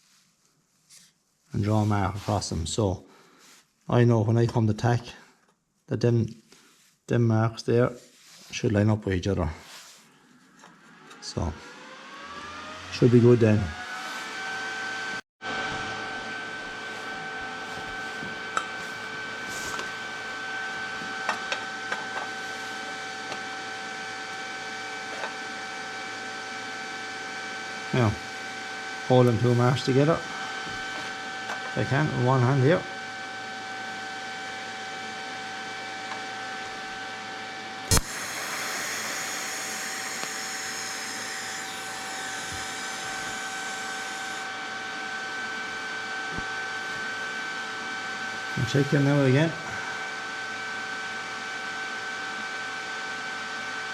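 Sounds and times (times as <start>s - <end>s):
welding machine hum: 15.7s - 24.4s, 37.9s - 44.5s
welding arc striking and hissing: 37.9s - 41.2s.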